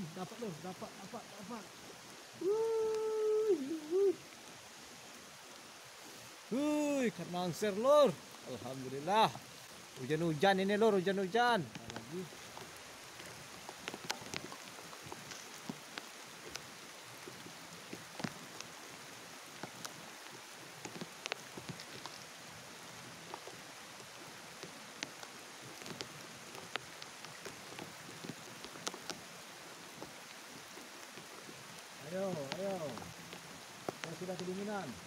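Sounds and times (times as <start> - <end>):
rain hissing on water: 0.0 - 35.0
single raindrop ticks: 11.6 - 18.8, 20.8 - 34.7.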